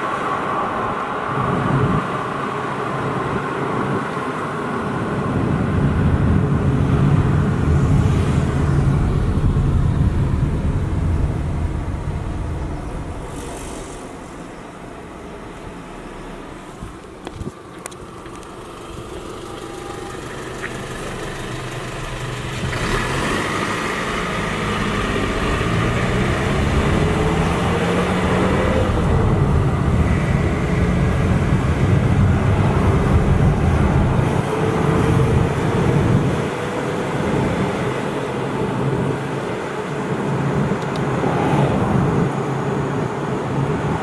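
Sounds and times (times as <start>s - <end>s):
tyre road noise: 0.0s - 44.0s
car engine accelerating: 6.5s - 36.5s.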